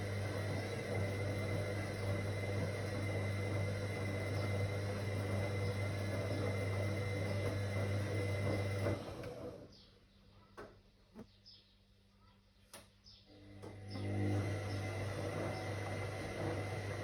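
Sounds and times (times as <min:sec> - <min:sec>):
washing machine humming: 0:00.0 - 0:09.8, 0:13.3 - 0:17.0.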